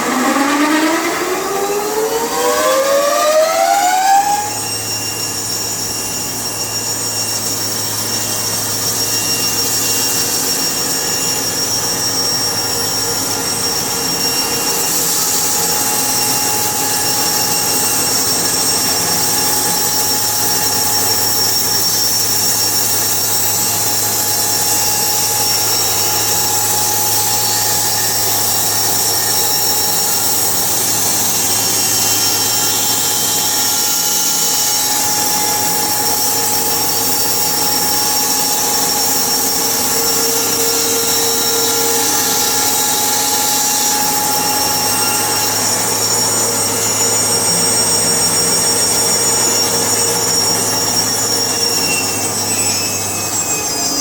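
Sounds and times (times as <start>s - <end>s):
machine motor whining: 0.0s - 5.5s, 22.4s - 47.2s.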